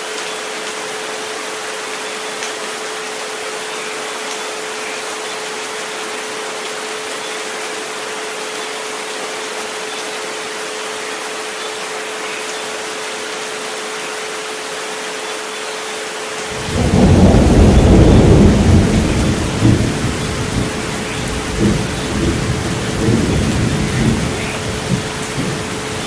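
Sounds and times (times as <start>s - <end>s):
steady rain hiss: 0.0s - 26.0s
low rumble of thunder: 16.5s - 26.0s.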